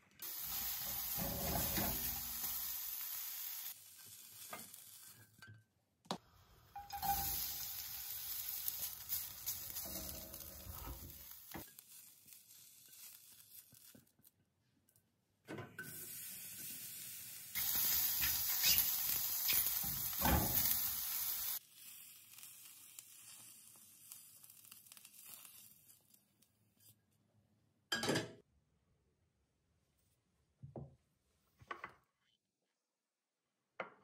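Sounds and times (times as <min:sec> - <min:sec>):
food sizzling in a frying pan: 0:00.2 - 0:05.4, 0:06.4 - 0:14.2, 0:15.8 - 0:26.3.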